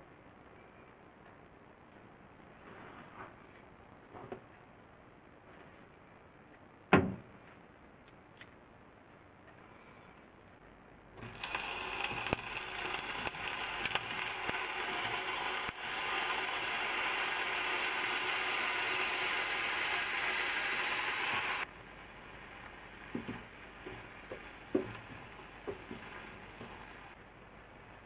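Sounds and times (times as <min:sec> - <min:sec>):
seafood sizzling in frying pan: 0:11.2 - 0:21.6.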